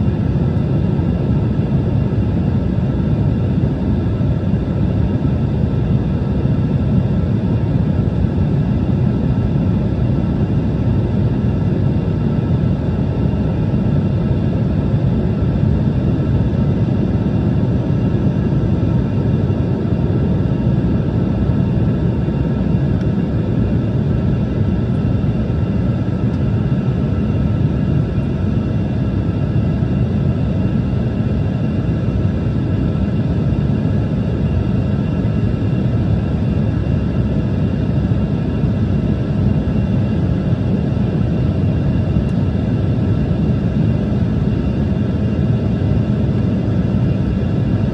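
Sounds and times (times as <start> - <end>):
faint turbine whine: 0.0 - 47.9
jet engines low rumble: 0.0 - 47.9.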